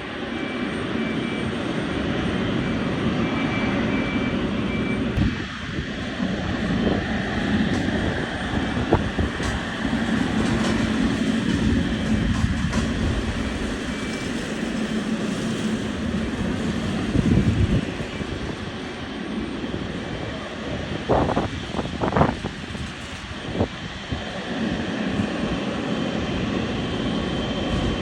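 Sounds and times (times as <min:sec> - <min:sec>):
jet engines rushing: 0:00.0 - 0:28.0.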